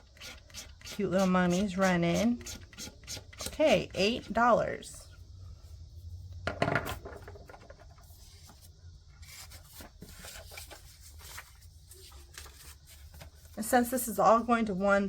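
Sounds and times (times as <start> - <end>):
paper rustling on a desk: 6.9 - 14.0.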